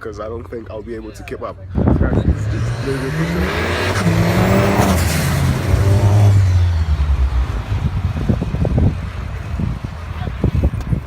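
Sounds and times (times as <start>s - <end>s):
car engine running: 1.8s - 10.0s.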